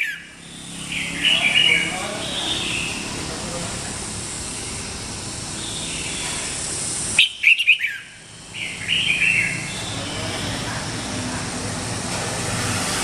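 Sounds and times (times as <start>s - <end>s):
bird chirping and warbling: 0.0s - 3.2s, 4.4s - 11.3s.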